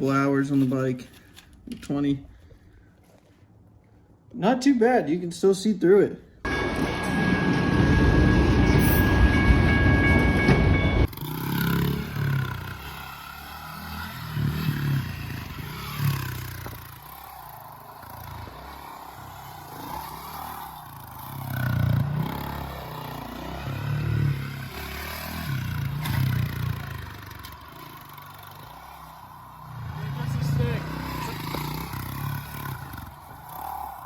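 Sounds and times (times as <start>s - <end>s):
dirt bike engine revving: 11.1s - 34.0s.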